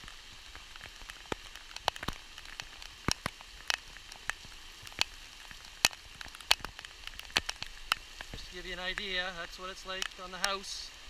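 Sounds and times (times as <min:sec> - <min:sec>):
heavy rain hiss: 0:00.0 - 0:11.0
large raindrops tapping: 0:00.0 - 0:11.0.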